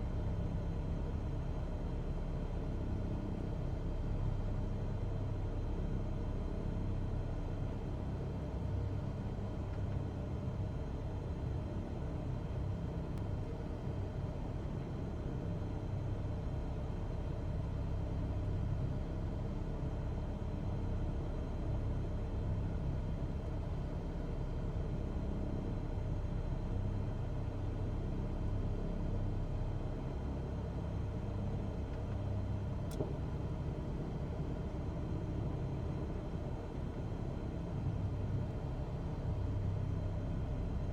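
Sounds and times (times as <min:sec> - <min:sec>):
faint click: 0:32.8 - 0:33.2.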